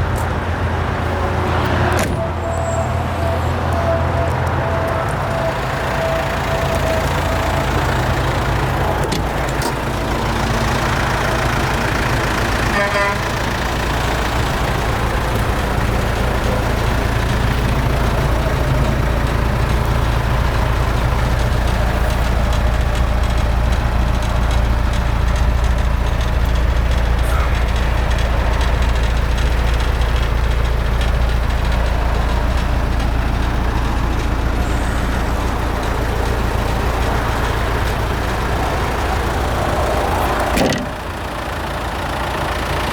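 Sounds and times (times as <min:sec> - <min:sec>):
diesel engine running: 0:00.0 - 0:42.9
rapid ticking: 0:06.4 - 0:40.2.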